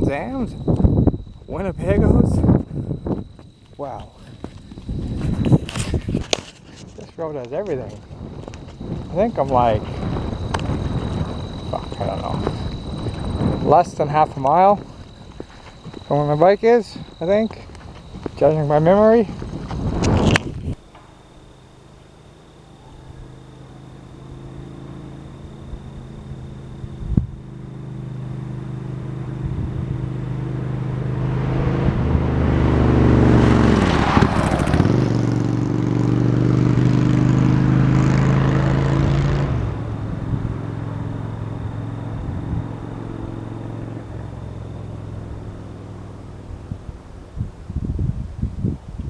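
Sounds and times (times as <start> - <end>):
vehicle driving past: 27.5 - 47.2.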